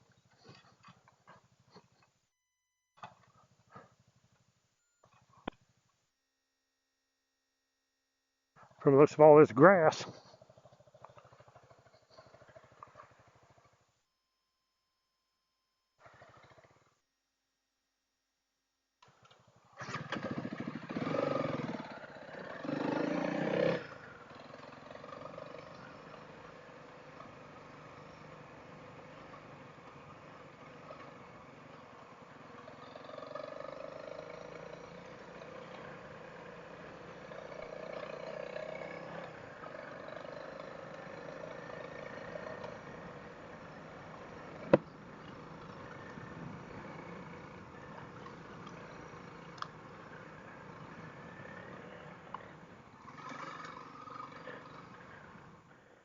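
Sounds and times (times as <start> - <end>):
motorcycle engine running: 10.1 - 13.8, 19.6 - 55.5.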